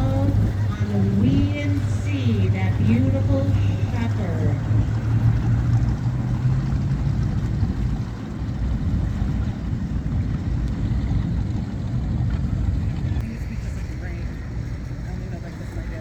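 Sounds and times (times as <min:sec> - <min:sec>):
motorboat engine rumbling: 0:00.0 - 0:16.0.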